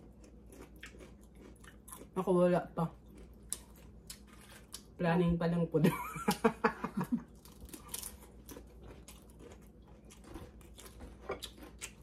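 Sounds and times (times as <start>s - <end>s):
crunching tortilla chips: 0.0s - 2.2s, 7.3s - 12.0s.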